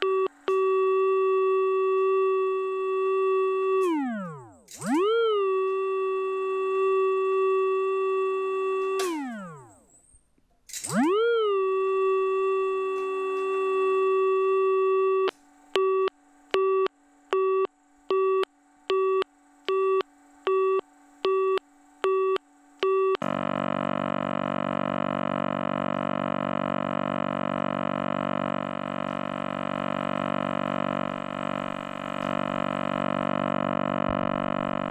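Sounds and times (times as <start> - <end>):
busy tone beeping: 0.0 - 9.8, 11.6 - 23.3
steady telephone tone: 0.0 - 9.9, 10.9 - 34.9
buzzy dial tone: 0.0 - 10.0, 10.9 - 34.9.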